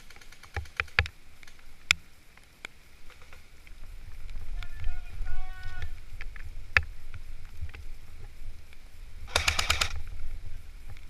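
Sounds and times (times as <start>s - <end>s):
sharp clicks and snaps: 0.0s - 3.4s.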